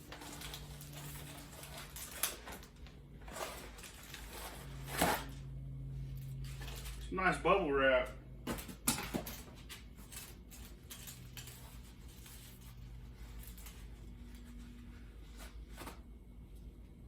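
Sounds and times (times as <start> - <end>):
bubble wrap crinkling: 0.0 - 5.3, 10.0 - 15.9
steady low hum: 0.0 - 17.0.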